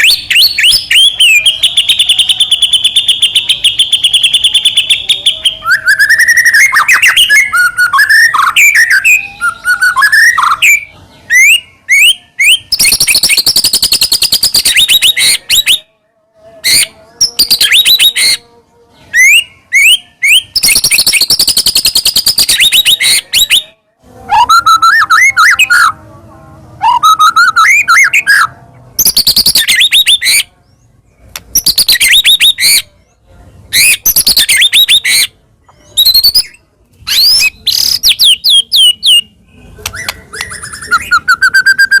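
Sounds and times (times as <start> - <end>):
bird singing whistled phrases: 0.0 - 15.9, 16.7 - 18.4, 19.1 - 23.7, 24.3 - 26.0, 26.8 - 30.5, 31.5 - 32.9, 33.7 - 42.0
bird chattering notes: 37.1 - 42.0.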